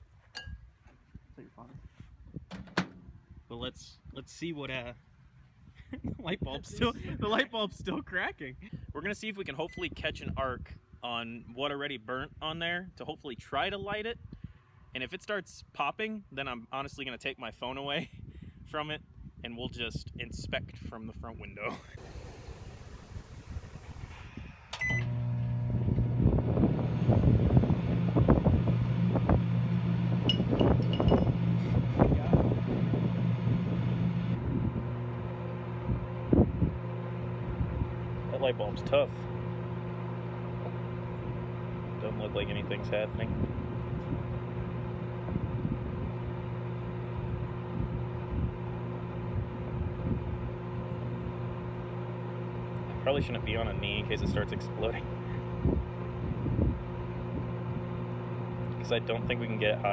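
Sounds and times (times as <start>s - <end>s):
microwave humming: 21.7s - 59.9s
microwave beep: 24.7s - 25.5s.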